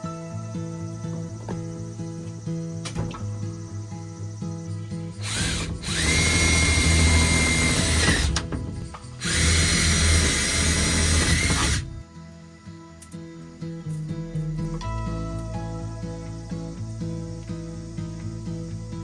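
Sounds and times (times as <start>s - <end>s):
power drill running: 5.2s - 12.0s.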